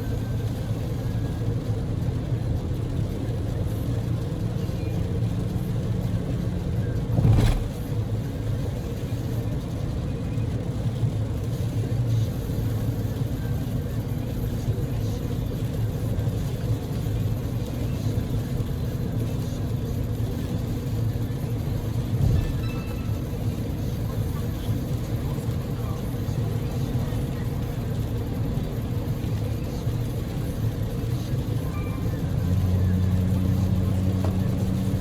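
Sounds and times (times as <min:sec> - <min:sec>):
car engine rumble: 0:00.0 - 0:35.0.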